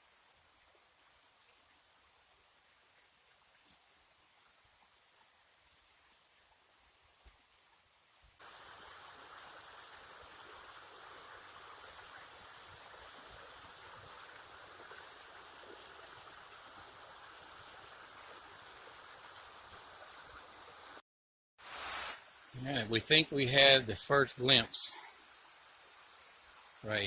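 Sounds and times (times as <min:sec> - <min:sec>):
rushing water: 0:08.4 - 0:21.0, 0:21.6 - 0:27.0.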